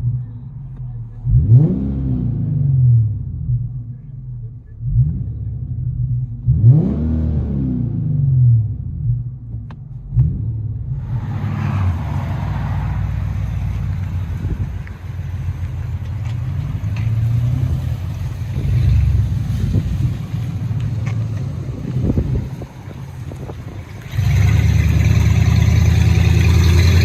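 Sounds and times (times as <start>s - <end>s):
car exhaust deep rumble: 0.0s - 27.0s.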